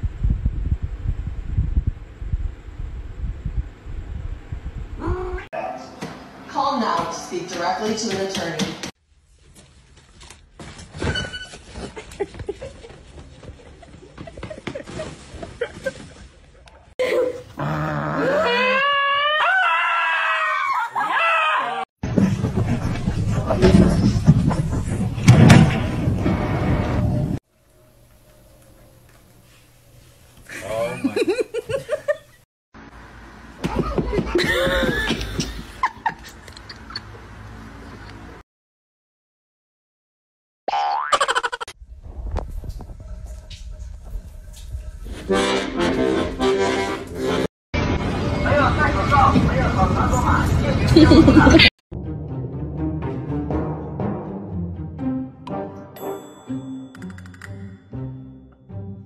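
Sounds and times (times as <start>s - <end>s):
person laughing: 11.8s - 16.4s, 17.0s - 18.7s, 30.5s - 32.4s, 34.1s - 37.2s, 50.9s - 51.7s
knocks and clatter: 22.0s - 26.8s.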